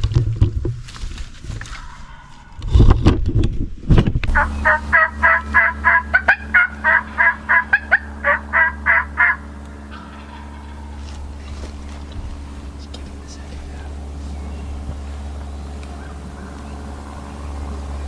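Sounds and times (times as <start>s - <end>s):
steady low hum: 0.0s - 18.0s
low thumps: 2.6s - 17.9s
turkey yelps: 4.4s - 11.0s.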